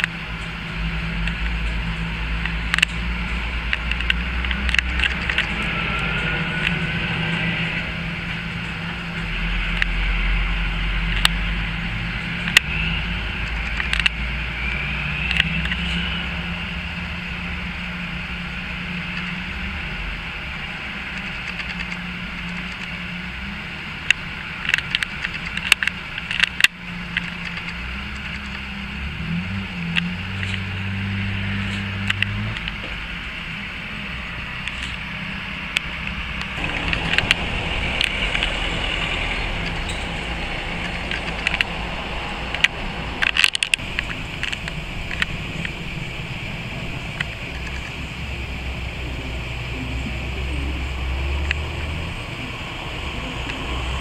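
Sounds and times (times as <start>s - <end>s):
car engine running at low revs: 0.0s - 54.0s
light road traffic: 0.0s - 54.0s
sharp clicks: 3.7s - 6.8s, 35.7s - 46.0s.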